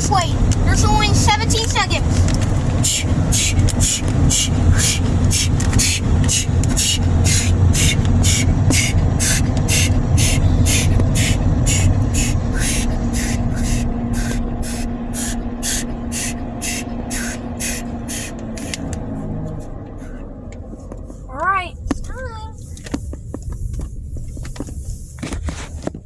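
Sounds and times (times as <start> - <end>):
spray hissing: 0.0 - 19.0
low machinery rumble: 0.0 - 26.0
steady hum: 0.0 - 26.0.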